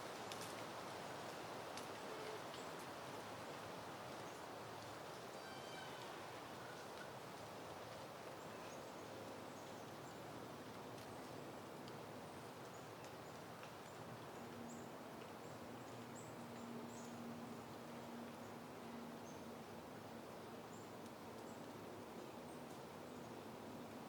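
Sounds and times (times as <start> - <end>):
soft wind: 0.0 - 24.0.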